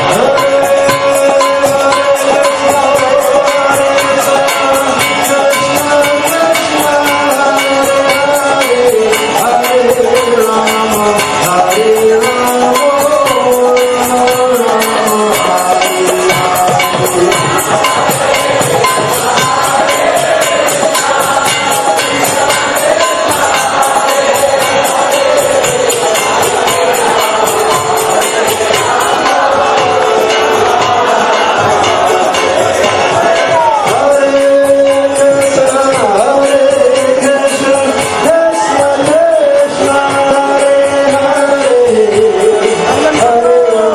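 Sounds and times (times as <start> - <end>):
jingling metal percussion: 0.0 - 43.9.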